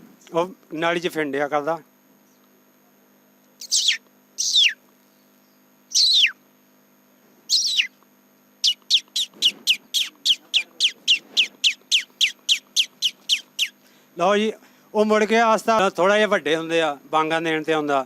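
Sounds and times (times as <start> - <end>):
man imitating chick peeping: 3.6 - 4.8, 5.9 - 6.4, 7.5 - 7.9, 8.6 - 13.8.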